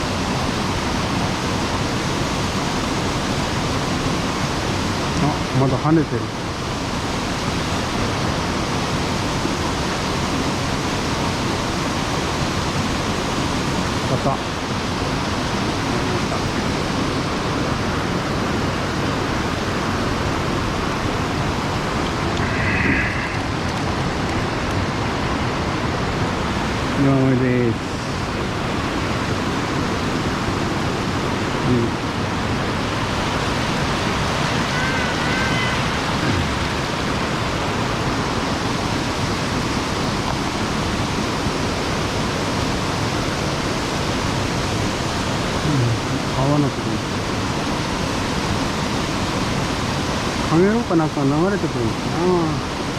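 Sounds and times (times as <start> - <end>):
stream water rushing: 0.0 - 52.9
faint high whistle: 22.4 - 23.5.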